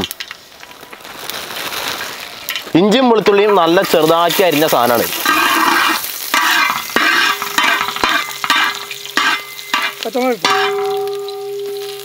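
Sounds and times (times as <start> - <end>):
food sizzling in hot oil: 0.0 - 12.0
metal spatula scraping wok: 2.5 - 12.0.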